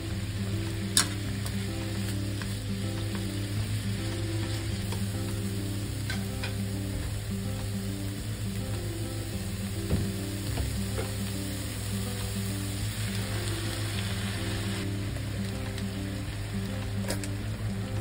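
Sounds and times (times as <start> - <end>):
vegetables sizzling in a pan: 0.0 - 18.0
chopsticks clicking on pan: 0.6 - 3.5, 4.4 - 6.7, 16.8 - 17.4.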